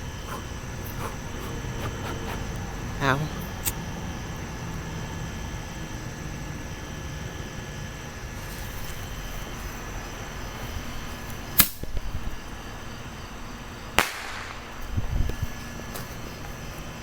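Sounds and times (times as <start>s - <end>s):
bottle rocket bangs: 14.0s - 14.6s.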